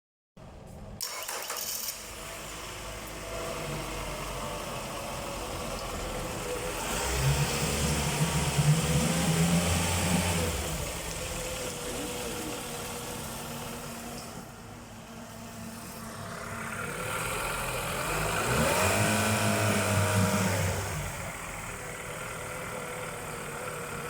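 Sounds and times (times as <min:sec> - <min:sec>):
outboard motor idling: 0:10.3 - 0:18.2, 0:19.6 - 0:24.0.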